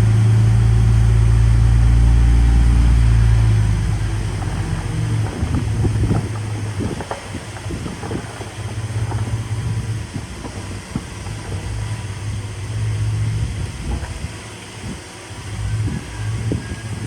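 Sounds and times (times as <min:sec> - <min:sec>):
diesel engine running: 0:00.0 - 0:17.0
metal clanks and knocks: 0:03.3 - 0:14.4.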